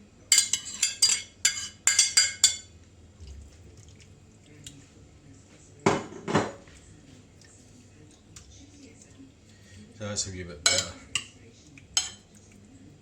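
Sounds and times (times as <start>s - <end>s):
utensil clinking against a dish: 0.3s - 2.8s, 10.2s - 12.6s.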